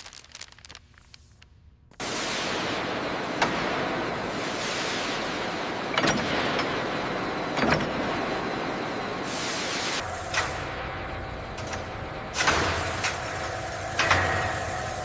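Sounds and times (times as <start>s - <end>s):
loud steady hissing: 0.0s - 7.5s, 8.7s - 11.8s, 12.4s - 15.0s.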